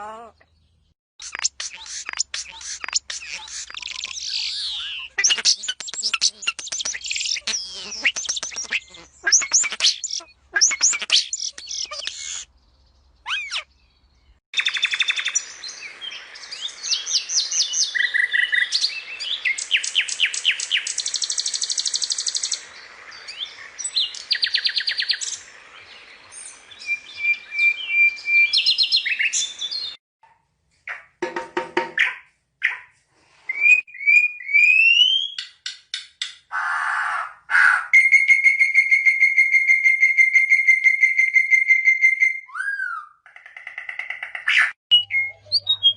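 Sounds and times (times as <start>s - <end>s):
small birds chirping and singing: 0.0s - 30.0s, 44.0s - 45.9s.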